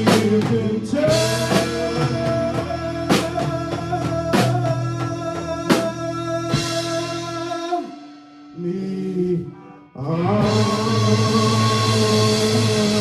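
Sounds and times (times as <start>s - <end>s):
heavy drum hits: 0.0s - 7.3s
live band playing: 0.0s - 9.4s, 10.3s - 13.0s.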